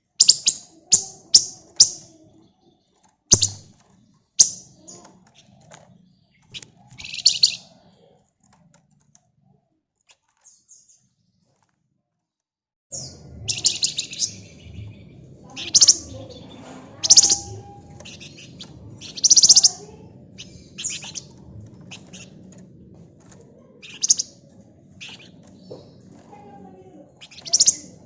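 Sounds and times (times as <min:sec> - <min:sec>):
songbird buzzy trills: 0:00.1 - 0:02.2, 0:03.3 - 0:07.8, 0:12.9 - 0:28.0
soft bird chips: 0:02.8 - 0:08.6, 0:15.5 - 0:28.0.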